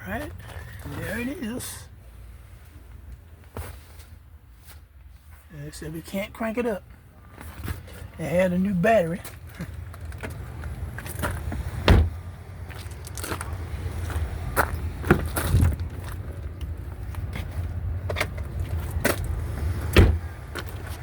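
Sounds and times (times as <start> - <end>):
steady low rumble: 9.3 - 21.0
sharp knocks and thumps: 11.8 - 12.2, 19.9 - 20.2.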